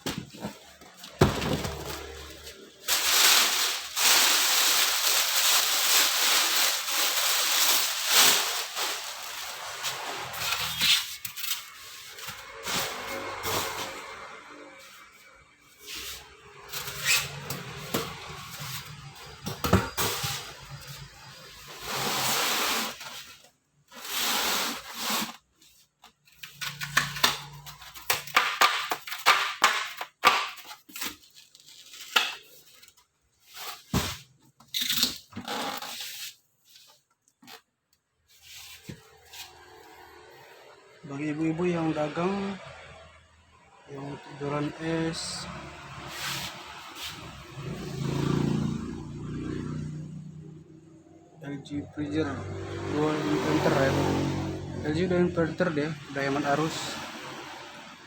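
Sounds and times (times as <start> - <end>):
packaging tearing and rustling: 0.6 - 14.2, 26.3 - 37.6.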